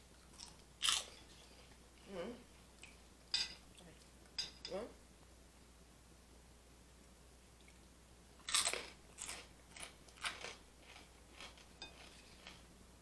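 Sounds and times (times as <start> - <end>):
pork rind crunching: 0.4 - 1.2, 8.4 - 12.6.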